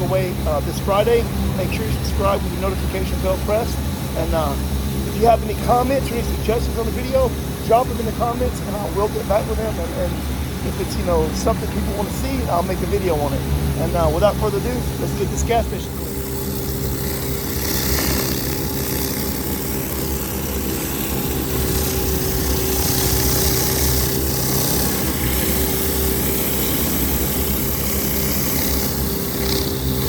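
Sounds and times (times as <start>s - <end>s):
pressure washer engine running: 0.0s - 30.0s
water spraying on concrete: 13.9s - 30.0s.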